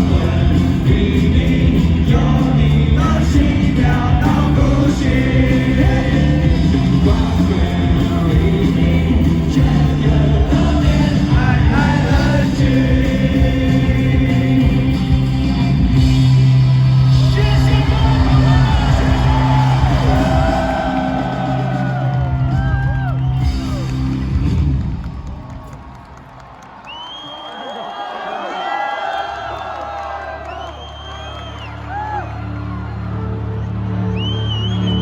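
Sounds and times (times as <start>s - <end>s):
person singing: 0.0s - 15.6s
pop-rock band playing: 0.0s - 25.0s.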